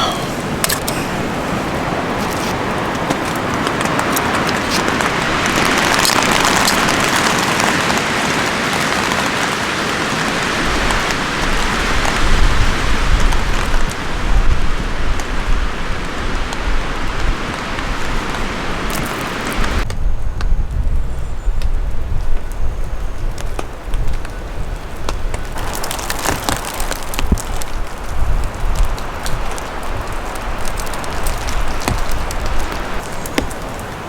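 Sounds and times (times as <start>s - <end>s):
steady rain falling: 0.0s - 34.0s
wind buffeting microphone: 0.0s - 34.0s.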